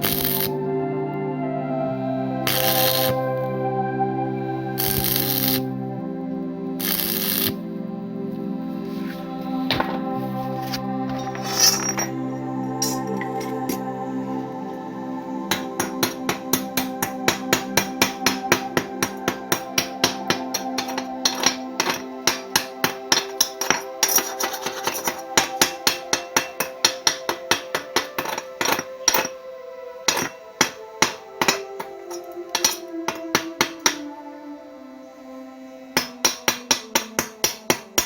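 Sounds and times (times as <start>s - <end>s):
hammer striking iron bar: 15.5s - 29.4s, 30.1s - 34.0s, 36.0s - 38.0s.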